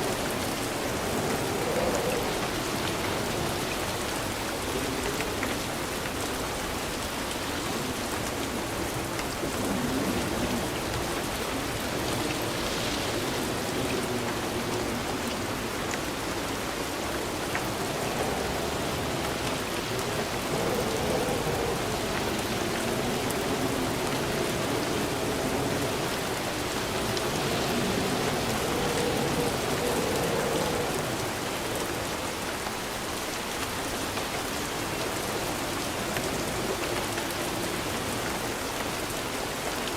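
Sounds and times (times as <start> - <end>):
steady rain falling: 0.0 - 39.9
thunder rumbling: 8.4 - 32.2.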